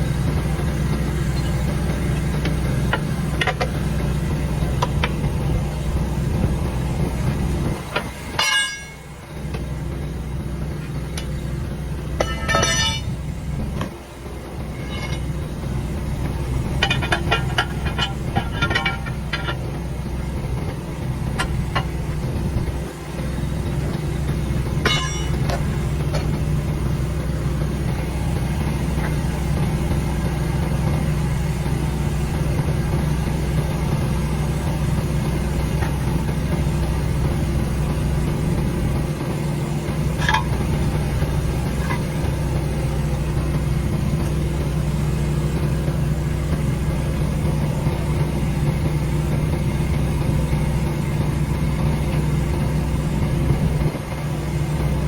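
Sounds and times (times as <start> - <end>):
engine idling: 0.0 - 55.0.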